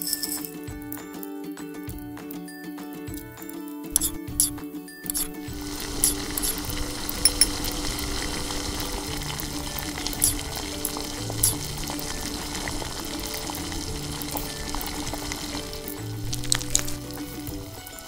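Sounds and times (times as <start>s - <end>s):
soft background music: 0.0s - 18.0s
steady sizzling hiss: 3.9s - 18.0s.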